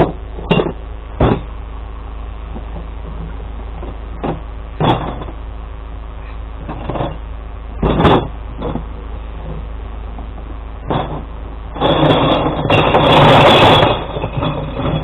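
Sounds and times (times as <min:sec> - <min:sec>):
knocks and rattles: 0:00.0 - 0:01.6, 0:02.5 - 0:05.4, 0:06.6 - 0:15.0
truck engine droning: 0:00.0 - 0:15.0.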